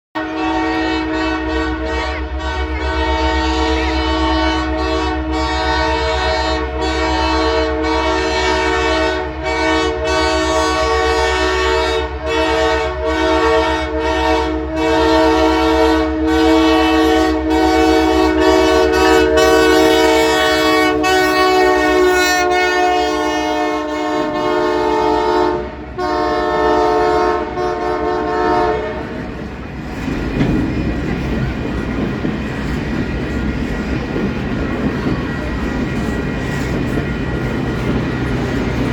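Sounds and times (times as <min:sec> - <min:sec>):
locomotive horn chord: 0:00.2 - 0:29.3
rumble of train passing: 0:00.2 - 0:38.9.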